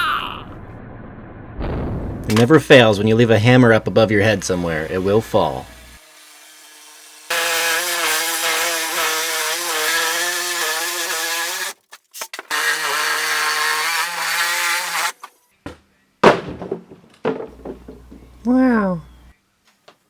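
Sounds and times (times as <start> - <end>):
power saw cutting wood: 3.9 - 15.3.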